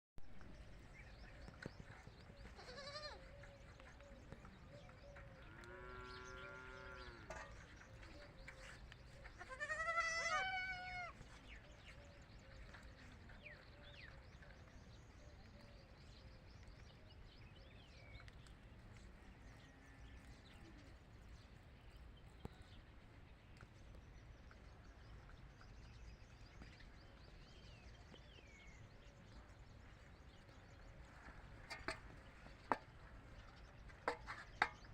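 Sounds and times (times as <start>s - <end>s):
baby goats bleating: 2.6s - 3.2s, 9.4s - 11.1s.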